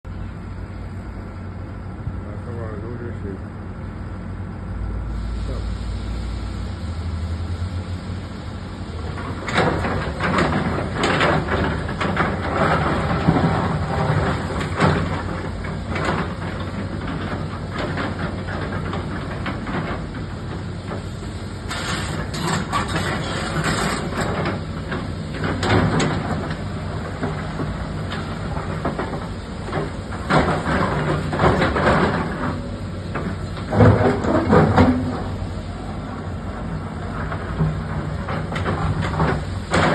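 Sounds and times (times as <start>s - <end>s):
excavator engine running: 0.1s - 39.9s
clanking and scraping: 9.0s - 39.9s.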